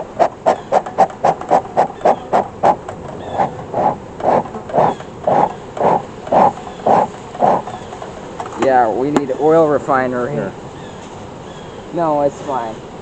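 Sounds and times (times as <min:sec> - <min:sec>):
smoker bellows puffing: 0:00.0 - 0:08.5.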